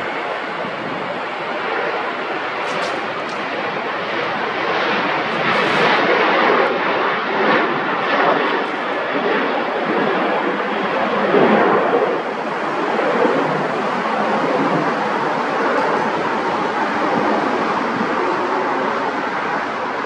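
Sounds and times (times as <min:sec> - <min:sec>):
airliner engine rushing: 0:00.0 - 0:20.0.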